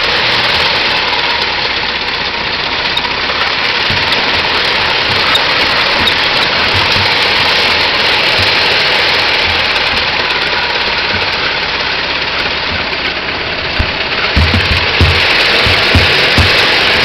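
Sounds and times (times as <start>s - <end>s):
car engine running: 0.0s - 17.0s
low thumps: 3.7s - 17.0s.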